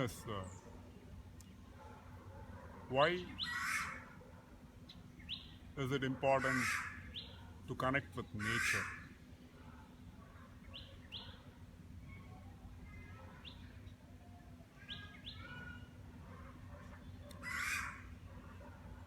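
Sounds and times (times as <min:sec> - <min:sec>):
wild birds chirping: 0:00.0 - 0:19.0
harsh bird call: 0:03.2 - 0:04.1, 0:06.3 - 0:07.4, 0:08.3 - 0:09.2, 0:17.4 - 0:18.1.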